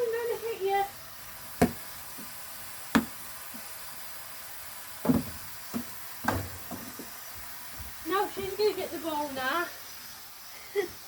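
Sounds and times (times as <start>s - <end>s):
ball knocking and bouncing: 1.6s - 2.3s, 2.9s - 3.7s, 5.0s - 7.1s.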